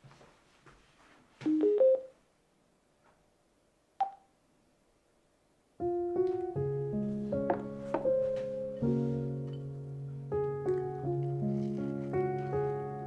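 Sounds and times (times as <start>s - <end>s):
piano music: 1.5s - 2.1s, 5.8s - 13.0s.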